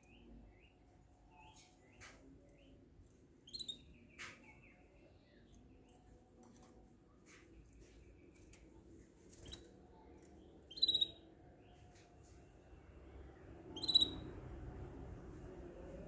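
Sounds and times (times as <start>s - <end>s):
small bird chirping: 0.0s - 6.2s, 9.3s - 11.9s, 13.6s - 14.4s.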